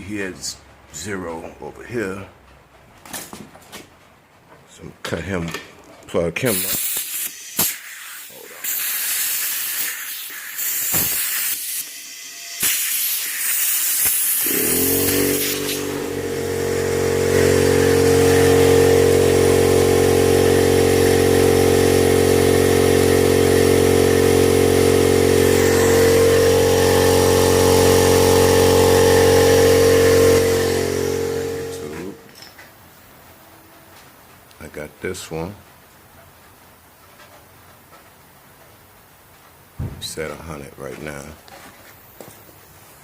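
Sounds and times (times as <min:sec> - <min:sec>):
compressed air hissing: 0:06.4 - 0:19.5, 0:22.8 - 0:32.2
air compressor running: 0:06.5 - 0:32.4.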